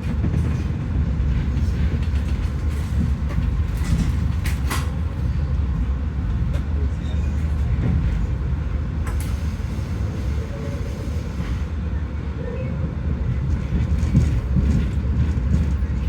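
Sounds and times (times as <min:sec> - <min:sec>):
passenger train rumbling: 0:00.0 - 0:16.0.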